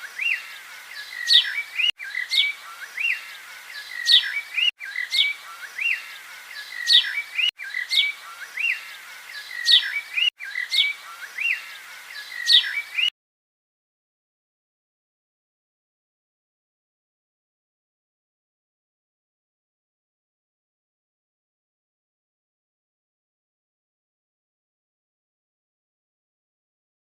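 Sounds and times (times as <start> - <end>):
bird chirping: 0.0 - 13.1.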